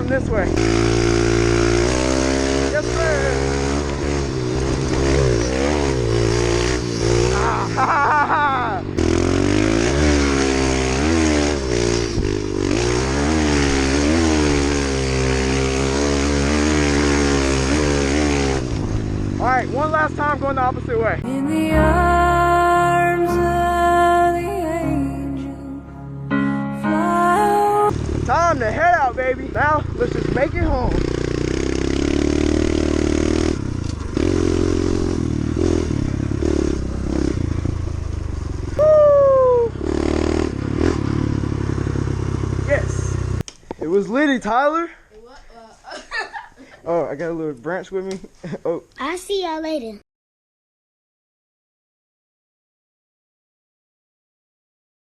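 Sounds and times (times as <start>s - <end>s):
small motorbike engine revving: 0.3s - 19.4s, 29.6s - 43.4s.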